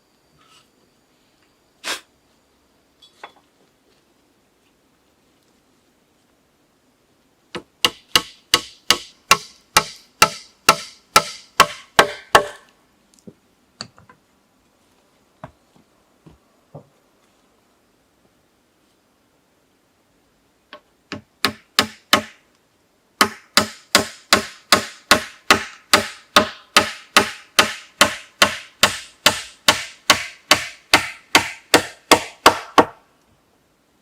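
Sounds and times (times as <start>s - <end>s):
tool striking wood: 7.5s - 12.7s, 20.7s - 22.4s, 23.2s - 33.0s.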